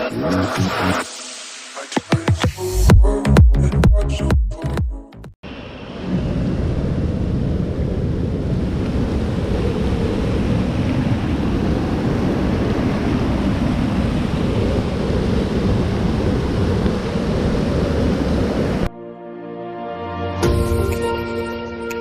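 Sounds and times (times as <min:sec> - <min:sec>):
waterfall roaring: 0:08.6 - 0:18.9.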